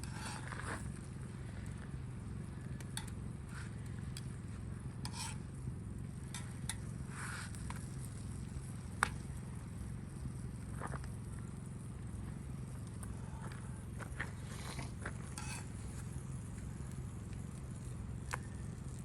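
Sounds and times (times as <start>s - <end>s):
utensil scraping in a pan: 0.0s - 0.8s, 5.0s - 5.4s, 14.4s - 15.9s.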